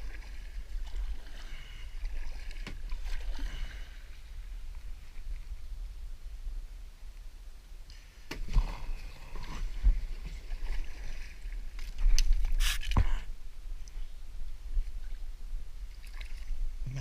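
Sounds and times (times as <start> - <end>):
paddle strokes splashing in water: 0.0 - 5.5, 7.9 - 13.0, 15.9 - 16.6.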